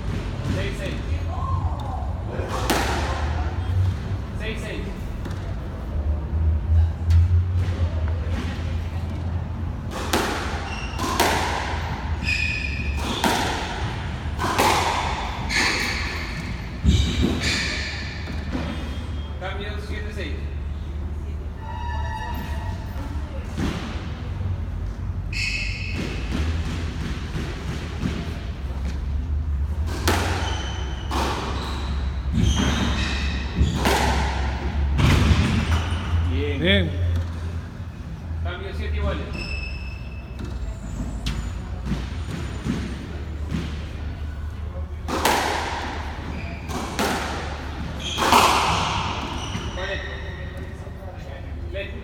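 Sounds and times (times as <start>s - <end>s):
squash ball hitting rackets and walls: 0.0s - 19.4s, 22.4s - 51.0s
squash ball struck hard: 2.5s - 3.4s, 9.8s - 18.8s, 29.8s - 31.6s, 33.6s - 35.8s, 45.1s - 49.4s
shoes squeaking on court floor: 7.7s - 19.4s, 25.2s - 26.6s, 29.8s - 36.3s, 39.1s - 44.6s, 45.8s - 51.3s.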